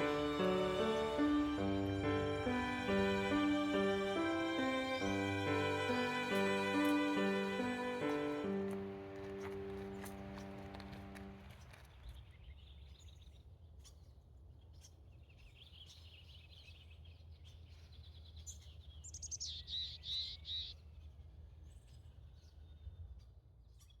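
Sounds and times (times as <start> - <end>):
songbird chirping: 0.0 - 11.4.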